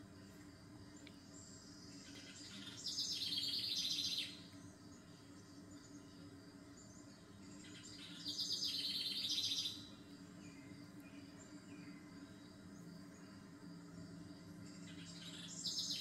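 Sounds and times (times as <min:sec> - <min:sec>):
faint steady background hum: 0:00.0 - 0:16.0
small bird singing high chirps: 0:01.4 - 0:12.0, 0:14.6 - 0:16.0.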